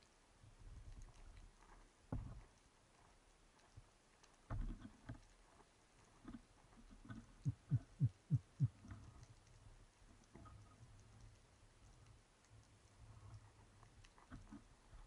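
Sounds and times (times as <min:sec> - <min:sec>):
faint underwater clicking: 0:02.4 - 0:15.0
low thumps dropping in pitch: 0:07.4 - 0:08.8.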